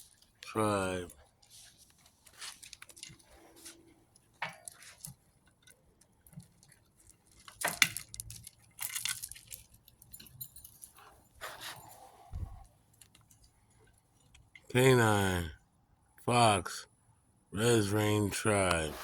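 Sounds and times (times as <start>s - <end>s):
small metal pieces jingling: 6.3s - 11.0s.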